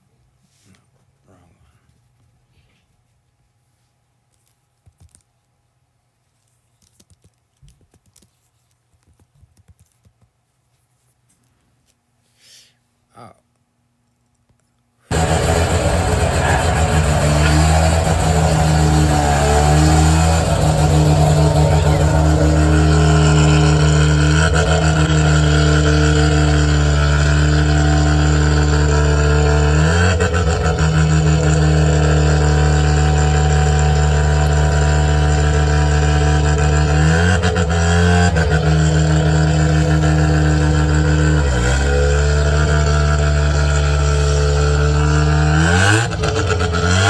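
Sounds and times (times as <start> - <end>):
car engine revving: 15.1 - 47.0
sharp exhaust pops: 15.1 - 47.0.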